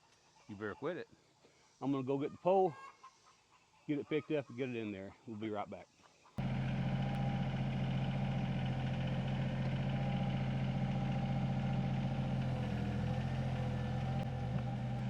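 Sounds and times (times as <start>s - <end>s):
diesel engine running: 6.4s - 15.0s.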